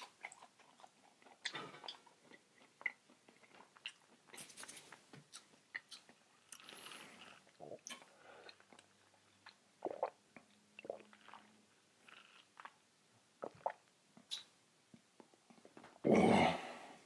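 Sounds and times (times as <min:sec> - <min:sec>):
person chewing food: 0:00.0 - 0:11.5.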